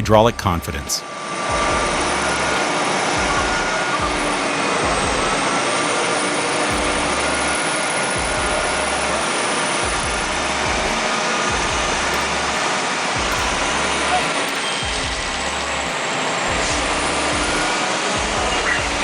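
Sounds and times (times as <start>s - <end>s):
low rumbles: 6.7s - 19.0s.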